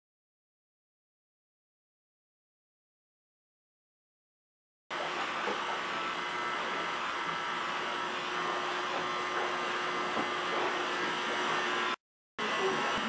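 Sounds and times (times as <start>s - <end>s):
small motor humming: 4.9s - 13.0s.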